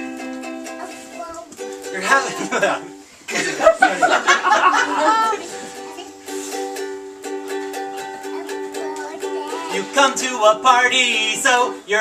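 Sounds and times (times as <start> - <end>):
ukulele strumming chords: 0.0 - 12.0
voices singing: 0.7 - 6.2, 8.0 - 12.0.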